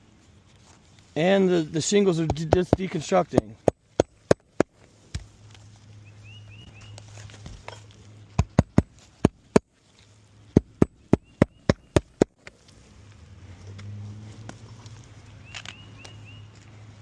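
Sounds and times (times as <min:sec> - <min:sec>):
sharp knocks on shingle roof: 0:02.3 - 0:05.3, 0:08.4 - 0:09.6
small bird chirping: 0:06.0 - 0:07.2, 0:10.9 - 0:12.1, 0:15.4 - 0:16.6.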